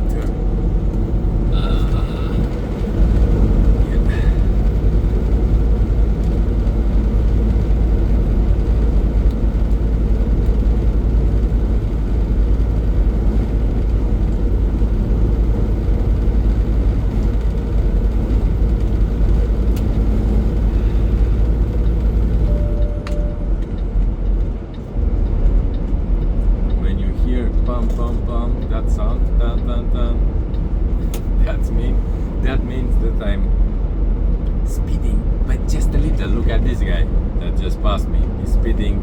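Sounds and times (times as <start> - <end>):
truck engine and road drone: 0.0 - 39.0
short beep: 22.4 - 23.7.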